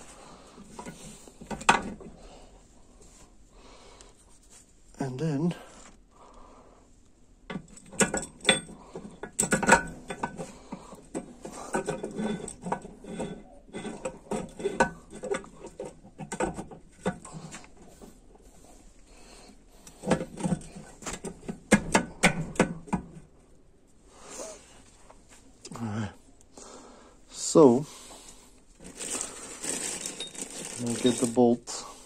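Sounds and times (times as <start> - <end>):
metal parts and tools clinking: 7.5 - 17.3, 28.8 - 31.6.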